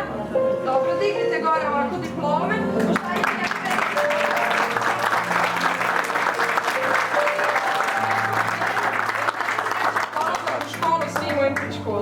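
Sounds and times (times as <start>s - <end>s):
recorded music: 0.0s - 12.0s
audience applauding: 2.8s - 11.7s.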